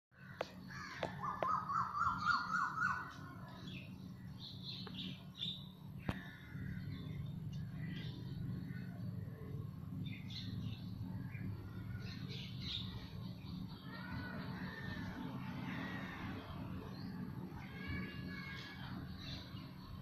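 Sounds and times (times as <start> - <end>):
birds chirping: 0.2 - 20.0
steady low hum: 0.2 - 20.0
bird calling rising notes: 0.7 - 3.4.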